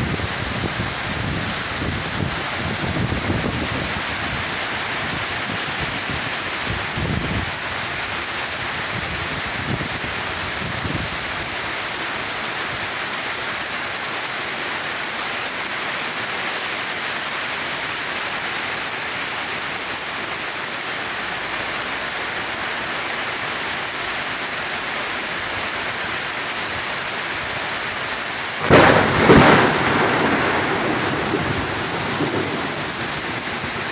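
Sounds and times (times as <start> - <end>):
heavy rain falling: 0.0 - 33.9
thunder clap and rumble: 28.6 - 33.9.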